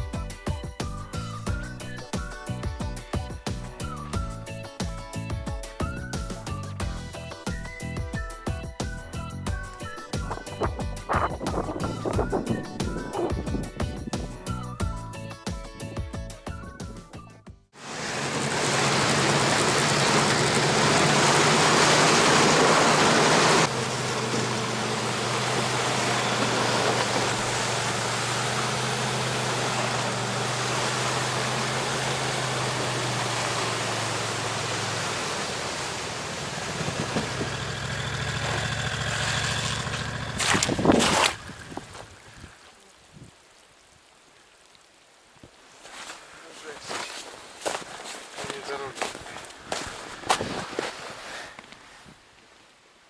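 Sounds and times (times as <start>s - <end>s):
small engine running: 17.8s - 41.8s.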